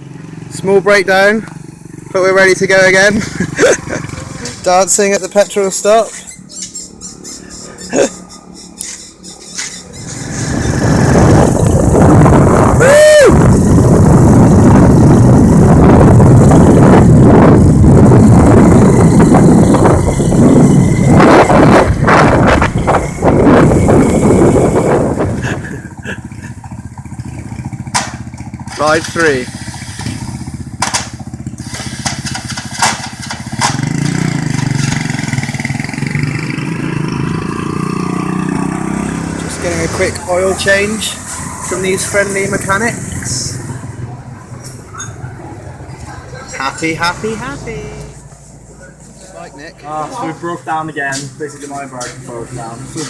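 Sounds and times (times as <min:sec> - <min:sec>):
motorbike engine running: 0:00.0 - 0:05.2, 0:06.2 - 0:49.1
wind rush on microphone: 0:10.0 - 0:26.7
motorbike engine putter: 0:26.3 - 0:35.8.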